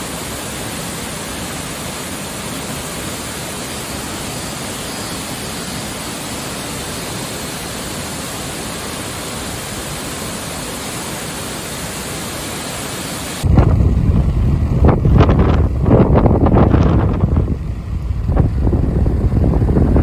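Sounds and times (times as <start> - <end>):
waterfall rushing: 0.0 - 17.4
wind rumble on microphone: 13.4 - 20.0.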